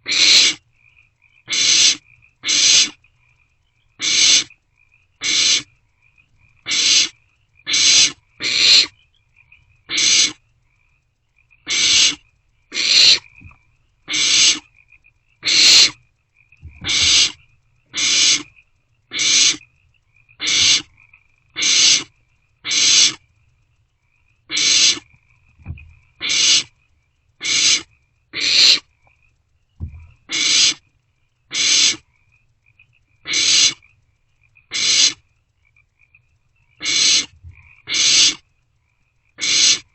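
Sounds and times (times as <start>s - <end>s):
owlets raspy begging hisses: 0.0s - 0.6s, 1.5s - 3.0s, 4.0s - 4.5s, 5.2s - 5.8s, 6.6s - 8.9s, 9.9s - 10.4s, 11.6s - 13.4s, 14.1s - 14.7s, 15.4s - 16.0s, 16.7s - 18.5s, 19.1s - 19.7s, 20.4s - 20.9s, 21.5s - 23.2s, 24.5s - 25.1s, 26.1s - 26.8s, 27.4s - 28.9s, 30.1s - 30.8s, 31.5s - 32.1s, 33.2s - 33.8s, 34.7s - 35.2s, 36.8s - 38.4s, 39.4s - 39.9s.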